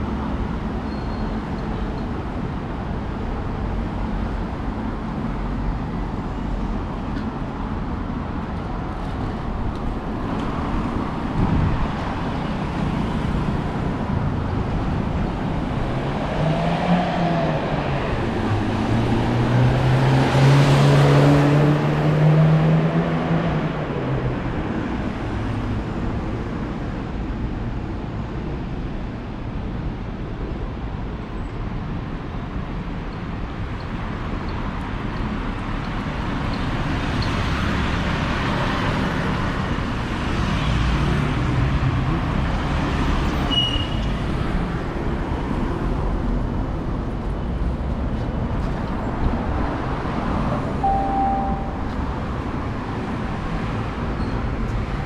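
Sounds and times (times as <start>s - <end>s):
passing road traffic: 0.0s - 55.0s
short high beep: 50.8s - 52.0s.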